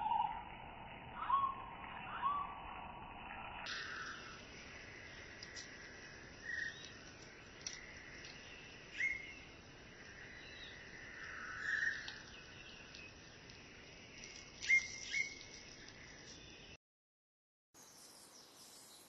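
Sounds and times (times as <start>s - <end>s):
forest birds calling: 1.1s - 16.8s, 17.8s - 19.0s
background hiss: 3.7s - 16.6s.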